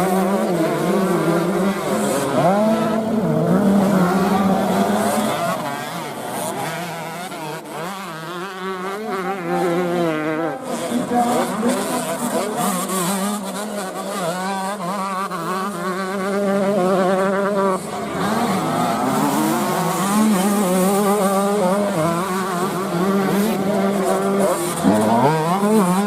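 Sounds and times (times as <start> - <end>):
motocross bike engines revving: 0.0 - 26.0.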